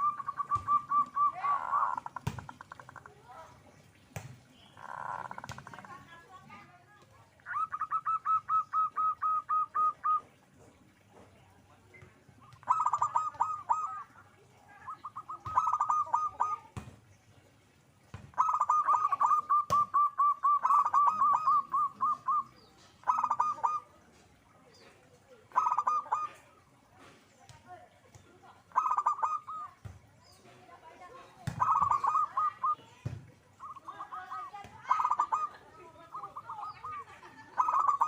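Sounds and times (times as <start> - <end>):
dove calling in staccato notes: 0.0 - 3.2, 4.6 - 6.2, 7.3 - 11.0, 12.4 - 14.1, 14.8 - 16.8, 18.3 - 24.1, 25.5 - 26.9, 28.6 - 38.0.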